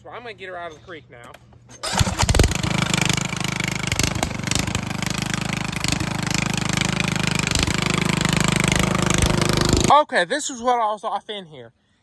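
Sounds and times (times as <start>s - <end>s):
lawnmower engine running: 1.8s - 9.9s.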